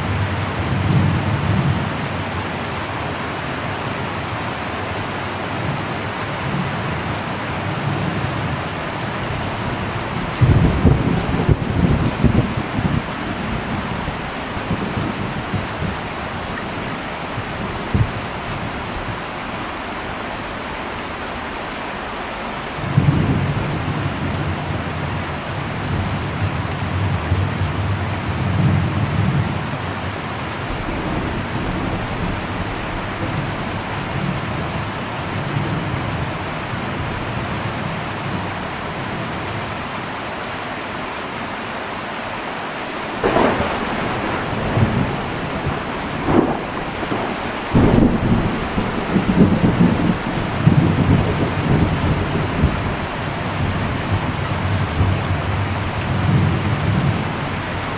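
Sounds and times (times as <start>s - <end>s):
heavy rain on a metal roof: 0.0s - 57.9s
thunder rumbling: 5.6s - 22.1s, 22.7s - 37.6s, 43.1s - 57.9s.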